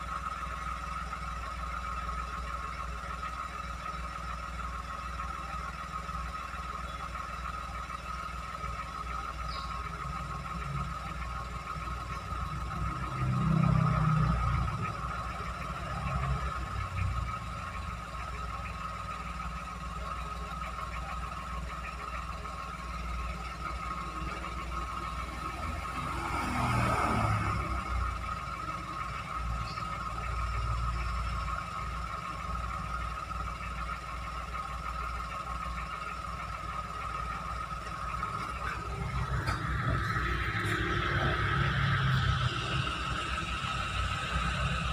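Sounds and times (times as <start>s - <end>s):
small car engine running: 0.0s - 44.9s
high-pitched hum: 38.2s - 44.9s.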